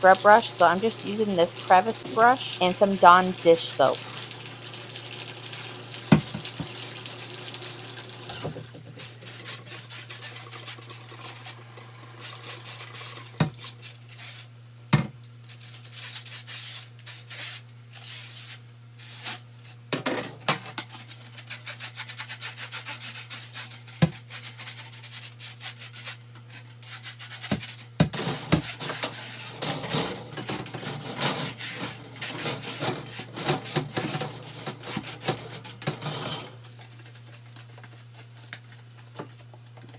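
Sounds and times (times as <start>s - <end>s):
brush scrubbing plastic: 0.0s - 4.4s
water running: 0.0s - 13.6s.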